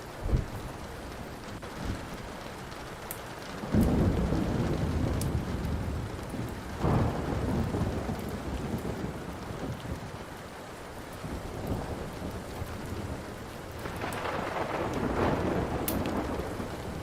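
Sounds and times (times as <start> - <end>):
steady rain: 0.0 - 17.0
wood fire crackling: 0.0 - 17.0
rolling thunder: 3.6 - 10.4, 11.2 - 17.0.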